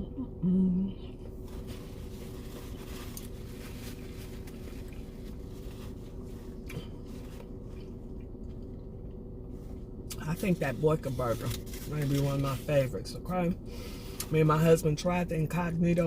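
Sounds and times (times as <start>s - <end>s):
steady low hum: 0.0s - 16.0s
soft rustling: 1.4s - 7.9s
person chewing food: 6.5s - 9.9s.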